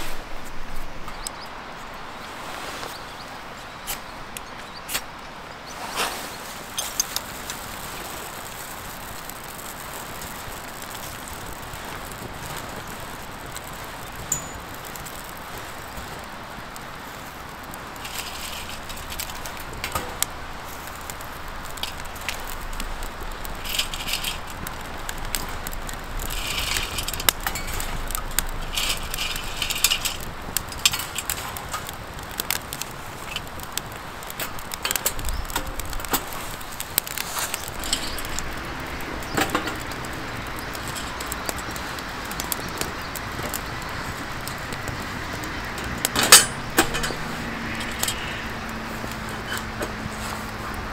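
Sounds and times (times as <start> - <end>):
campfire crackling and popping: 0.0 - 50.9
metallic jingles or scrapes: 11.8 - 15.8, 17.9 - 31.9, 37.2 - 41.3, 46.0 - 50.3.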